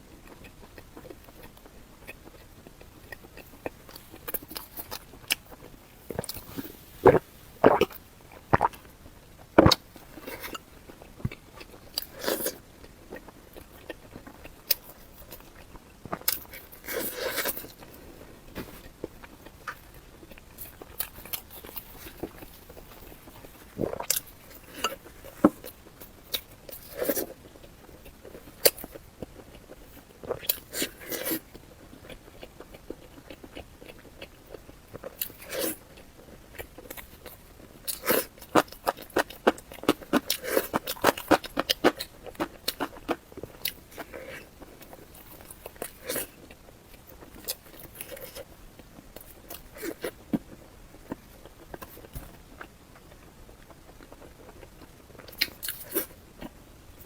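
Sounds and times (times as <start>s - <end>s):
crunchy bites and chewing: 0.2s - 56.6s.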